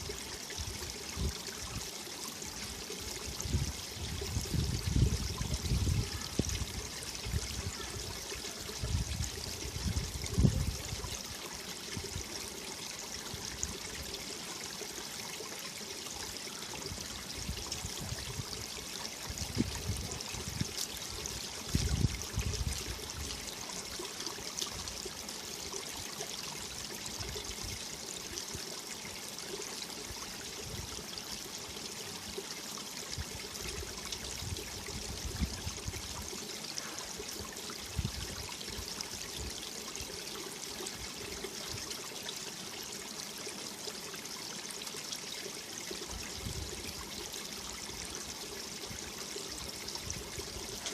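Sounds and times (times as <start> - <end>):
stream rushing over rocks: 0.0 - 50.9
wind buffeting microphone: 3.5 - 6.6, 21.7 - 22.9.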